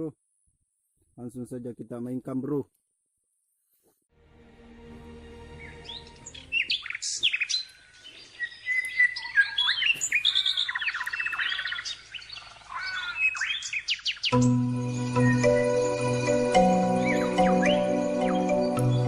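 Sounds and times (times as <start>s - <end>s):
birds chirping and singing: 5.4s - 19.0s.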